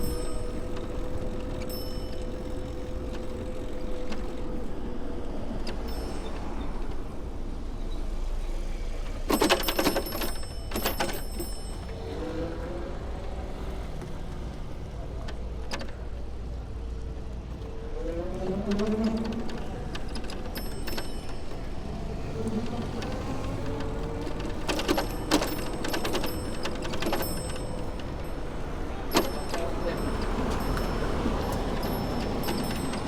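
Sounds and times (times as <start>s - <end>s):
wind: 0.0s - 33.0s
clicking and rattling: 9.0s - 12.1s, 13.7s - 33.0s.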